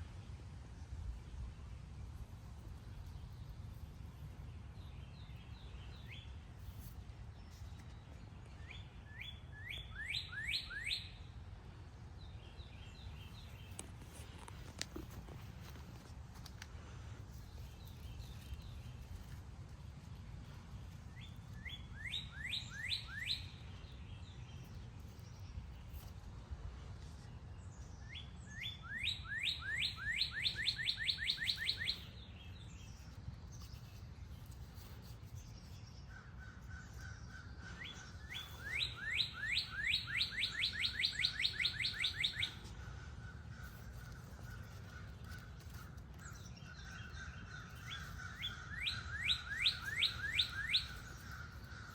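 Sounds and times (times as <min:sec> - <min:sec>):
songbird whistled song: 0:08.5 - 0:11.3, 0:21.2 - 0:23.9, 0:28.0 - 0:33.1, 0:37.0 - 0:42.7, 0:46.2 - 0:51.9.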